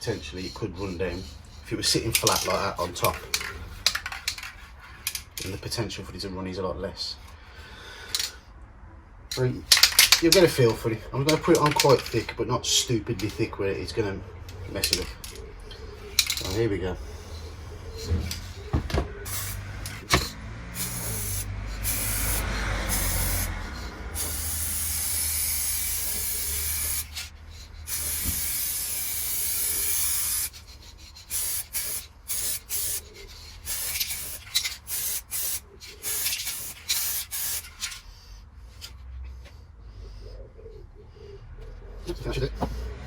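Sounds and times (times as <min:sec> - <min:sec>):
aerosol can spraying: 0:00.4 - 0:04.6, 0:16.1 - 0:37.9.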